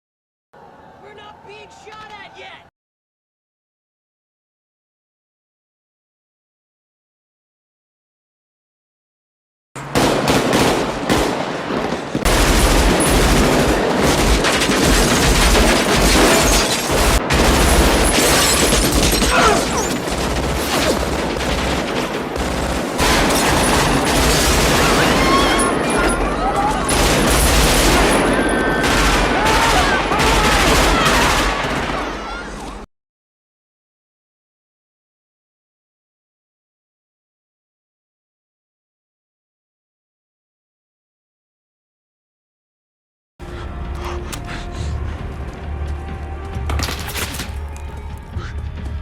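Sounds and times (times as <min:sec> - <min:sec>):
rapid gunfire: 0:09.9 - 0:32.2
men shouting: 0:29.1 - 0:31.5.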